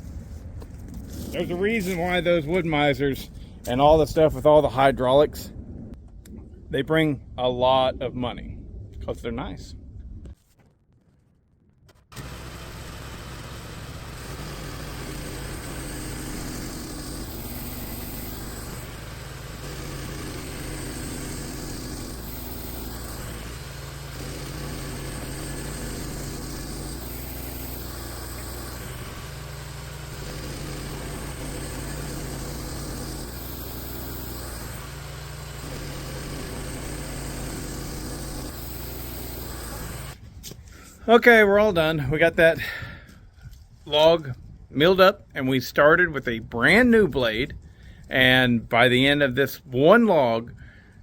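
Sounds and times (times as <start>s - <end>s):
sawmill engine running: 0.0s - 4.2s, 11.9s - 43.2s.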